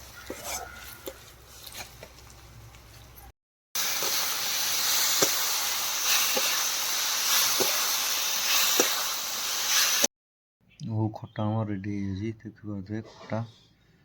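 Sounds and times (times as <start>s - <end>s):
cooking hiss from a pot: 3.8s - 10.1s.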